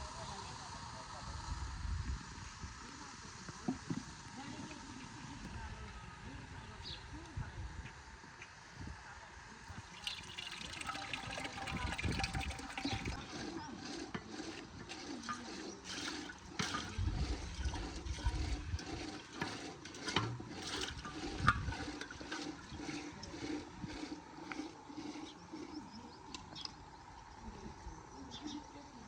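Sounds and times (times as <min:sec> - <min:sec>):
drips and patters: 0:09.8 - 0:25.7.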